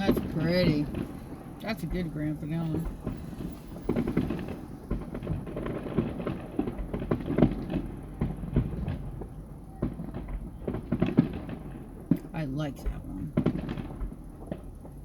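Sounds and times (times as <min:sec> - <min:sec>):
continuous rumble: 0:00.0 - 0:15.0
fireworks booming: 0:00.0 - 0:15.0.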